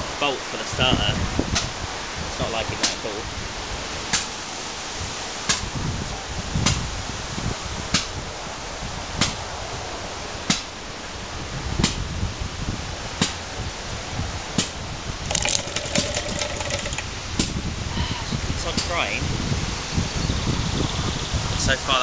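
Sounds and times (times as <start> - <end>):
small engine popping: 15.3 - 17.6.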